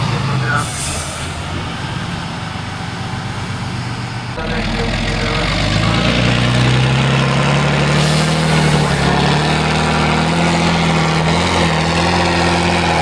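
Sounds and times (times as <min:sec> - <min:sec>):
diesel truck engine under load: 0:00.0 - 0:13.0.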